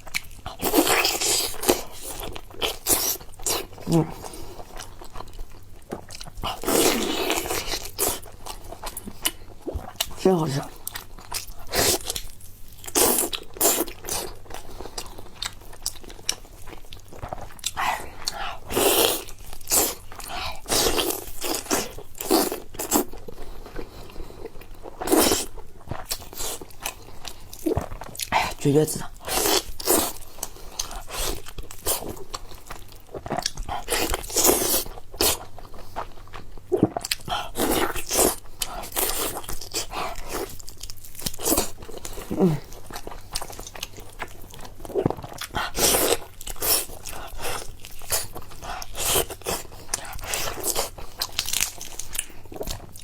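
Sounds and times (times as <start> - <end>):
person biting and chewing food: 0.0 - 10.2, 10.8 - 53.0.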